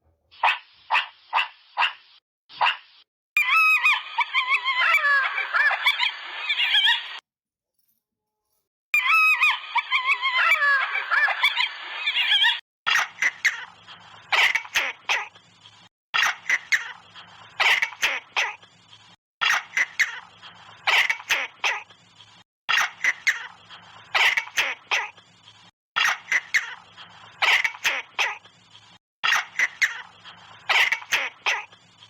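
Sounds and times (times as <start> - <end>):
chattering wavering animal calls: 3.4 - 7.2, 9.0 - 15.3, 29.2 - 32.0.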